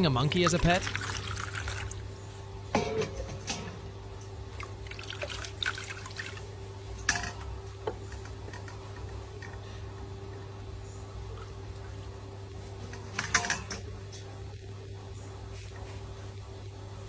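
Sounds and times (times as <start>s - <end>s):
steady low hum: 0.0s - 17.0s
bath water splashing: 0.4s - 2.0s, 4.6s - 6.5s.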